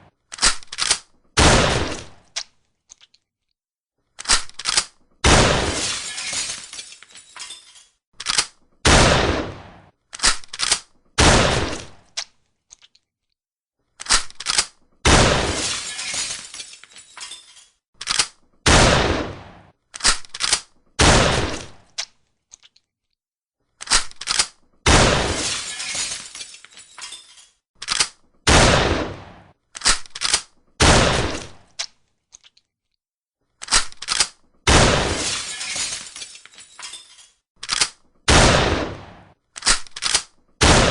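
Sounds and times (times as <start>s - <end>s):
shotgun shots: 1.4s - 2.2s, 5.2s - 5.9s, 8.8s - 9.9s, 11.2s - 12.0s, 15.0s - 15.9s, 18.6s - 19.7s, 21.0s - 21.8s, 24.9s - 25.6s, 28.5s - 30.0s, 30.8s - 31.6s, 34.7s - 35.3s, 38.3s - 39.4s, 40.6s - 40.9s
shotgun reloading: 39.6s - 40.3s.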